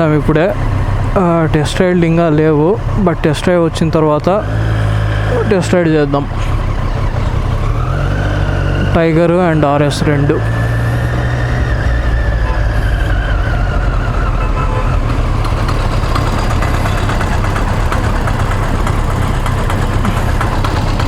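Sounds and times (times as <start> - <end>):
motorcycle engine rumbling: 0.0 - 21.0.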